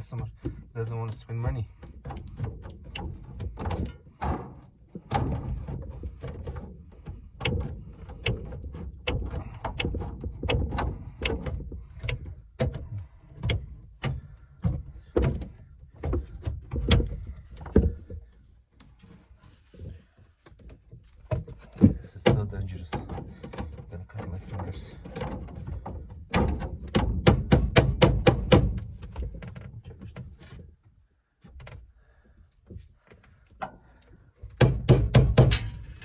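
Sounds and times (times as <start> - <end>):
knocks and clicks on hard parts: 7.4 - 18.0, 21.8 - 23.7, 25.2 - 29.3, 34.6 - 36.0.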